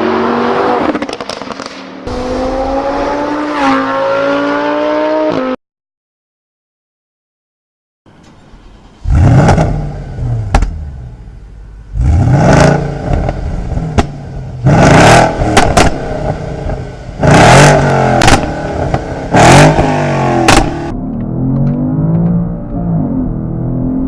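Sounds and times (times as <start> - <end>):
car engine revving: 0.0 - 5.6, 9.0 - 24.0
exhaust pops: 9.0 - 11.1, 13.0 - 14.5, 15.2 - 20.9.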